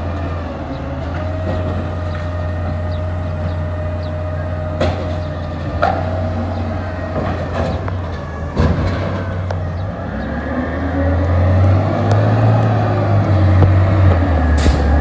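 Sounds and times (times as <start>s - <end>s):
diesel truck engine running: 0.0s - 15.0s
sharp knock: 14.6s - 15.0s.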